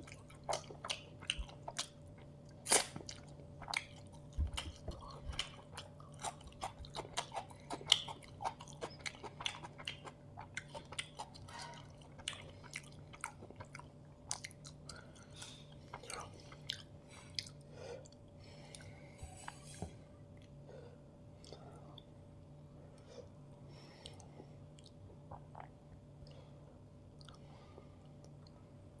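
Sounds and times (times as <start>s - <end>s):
chewing and mouth sounds: 0.0s - 18.9s, 24.0s - 26.4s.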